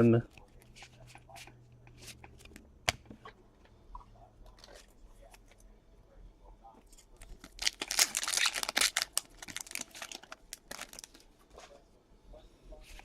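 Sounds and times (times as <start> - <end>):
foil wrapper tearing and crinkling: 7.4 - 11.2.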